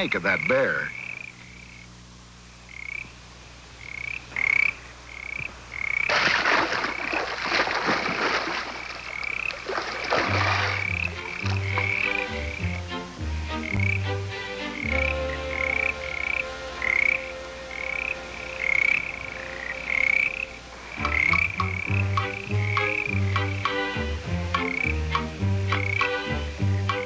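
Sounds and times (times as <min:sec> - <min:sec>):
deep frog croaks: 0:00.0 - 0:02.0, 0:02.6 - 0:03.2, 0:03.8 - 0:07.3, 0:08.7 - 0:23.8, 0:24.4 - 0:27.0
frogs chirping: 0:00.0 - 0:27.0
splashing: 0:06.0 - 0:12.1.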